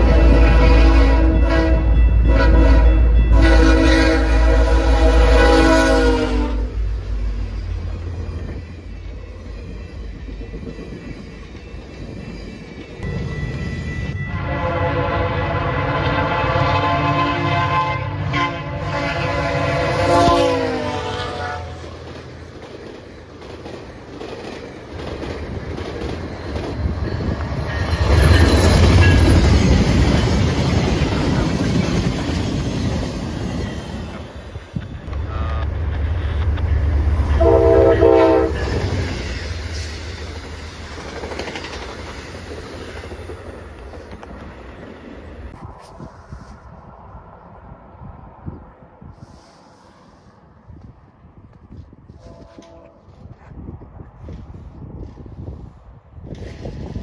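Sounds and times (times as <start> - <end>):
locomotive air horn: 0.0 - 6.9, 14.3 - 22.0, 35.2 - 35.8, 37.2 - 39.1, 52.1 - 53.2
train rumble and wheel clatter: 0.0 - 57.0.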